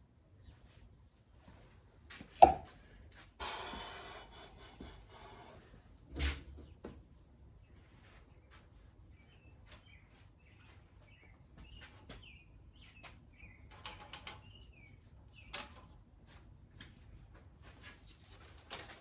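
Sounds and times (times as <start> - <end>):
birds chirping: 7.6 - 15.9.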